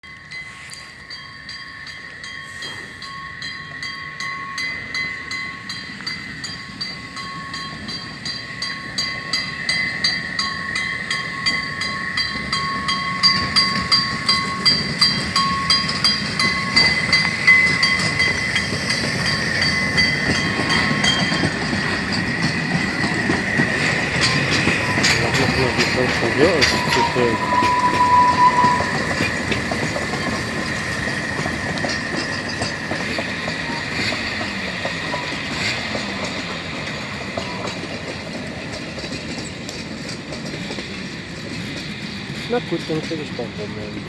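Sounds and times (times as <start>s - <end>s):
high-pitched ringing tone: 0.0s - 22.3s, 24.2s - 31.2s
train approaching: 0.0s - 44.0s.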